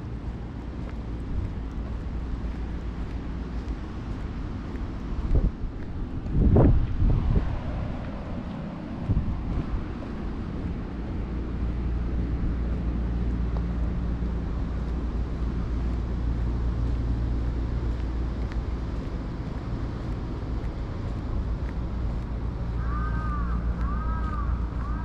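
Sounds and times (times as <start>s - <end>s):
street traffic rumble: 0.0s - 25.0s
wind on microphone: 0.3s - 13.0s.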